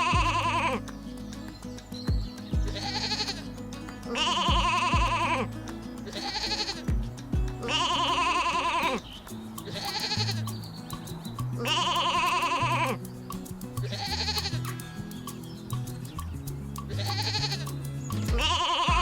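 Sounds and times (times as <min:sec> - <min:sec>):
animal bleating: 0:00.0 - 0:00.8, 0:02.7 - 0:03.5, 0:04.1 - 0:05.4, 0:06.1 - 0:06.9, 0:07.6 - 0:09.0, 0:09.6 - 0:10.5, 0:11.6 - 0:13.0, 0:13.8 - 0:14.8, 0:16.9 - 0:19.0
background music: 0:00.0 - 0:19.0.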